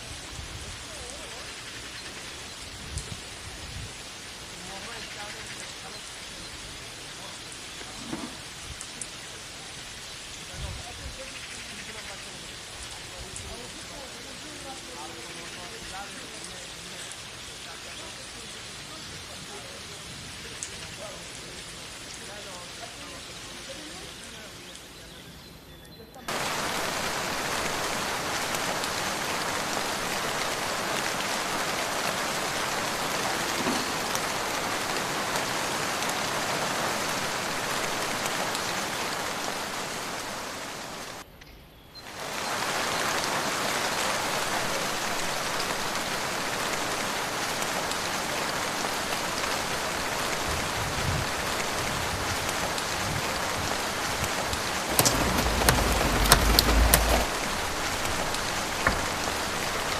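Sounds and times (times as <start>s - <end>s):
steady rain falling: 0.0s - 41.3s, 42.0s - 59.9s
deep rumble: 54.6s - 59.3s.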